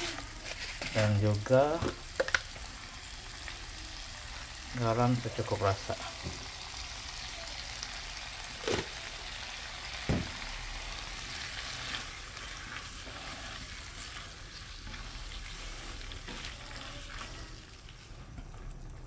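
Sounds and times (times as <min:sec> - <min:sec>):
spatula stirring: 0:00.0 - 0:02.4, 0:10.8 - 0:19.0
squid sizzling in a wok: 0:00.0 - 0:19.0.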